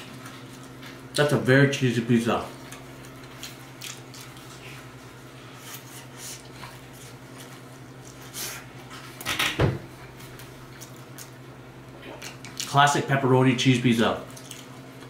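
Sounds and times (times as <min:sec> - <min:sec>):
man chewing with soft smacks: 0:00.0 - 0:01.3, 0:02.4 - 0:09.2, 0:09.9 - 0:12.8, 0:14.2 - 0:15.0
steady low hum: 0:00.0 - 0:15.0.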